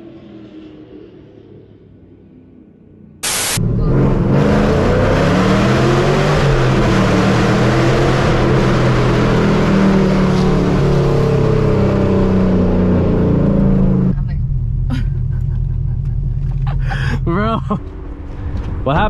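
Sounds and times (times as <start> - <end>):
loud car exhaust: 3.2 - 18.4.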